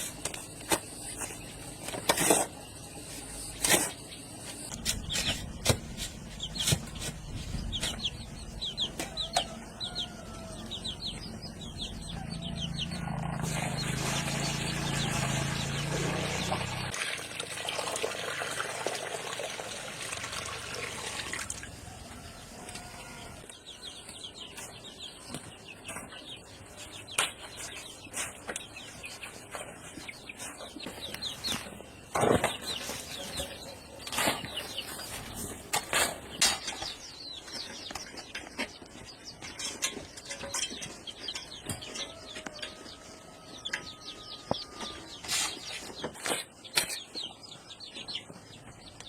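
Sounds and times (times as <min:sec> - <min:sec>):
birds chirping: 0:00.0 - 0:17.0, 0:20.7 - 0:49.0
sharp knocks and clatters: 0:04.7 - 0:09.6, 0:35.5 - 0:42.8.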